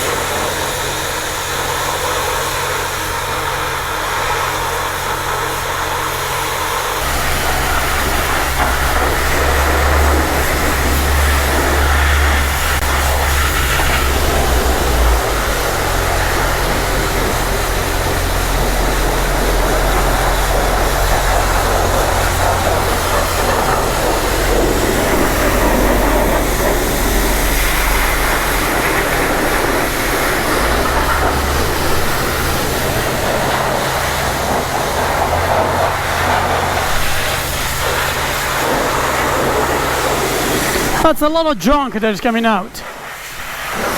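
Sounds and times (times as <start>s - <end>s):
pressure washer spraying water: 0.0s - 41.1s, 42.8s - 43.9s
low rumble: 7.0s - 38.0s.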